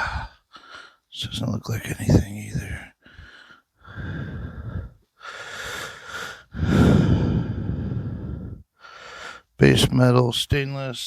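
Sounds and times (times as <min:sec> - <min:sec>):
person breathing heavily: 0:00.0 - 0:01.1, 0:02.6 - 0:09.6.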